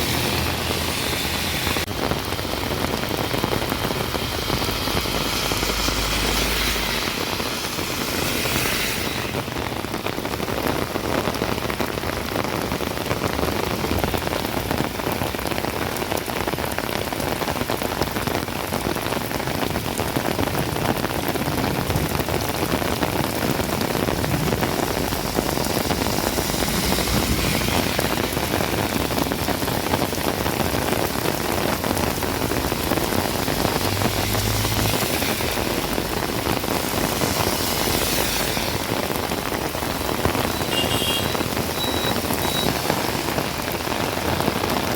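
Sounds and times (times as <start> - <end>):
rain on hard surfaces: 0.0 - 44.9.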